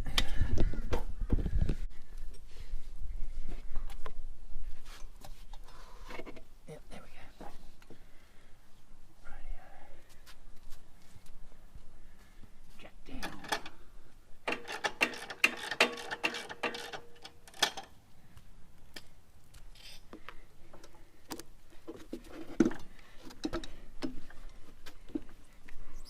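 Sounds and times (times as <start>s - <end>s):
metal parts and tools clicking: 14.5s - 18.0s.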